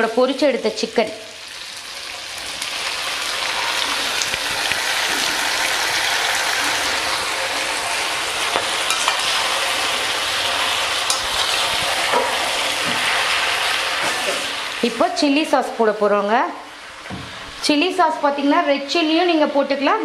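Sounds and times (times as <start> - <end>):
chicken sizzling in hot oil: 0.0 - 15.8.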